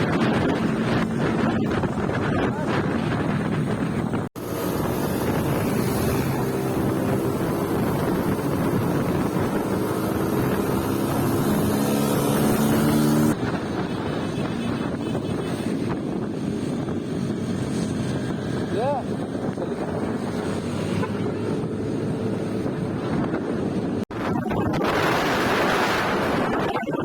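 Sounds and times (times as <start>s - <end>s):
wind noise on microphone: 0.0s - 27.0s
vehicle engine speeding up: 2.9s - 13.8s.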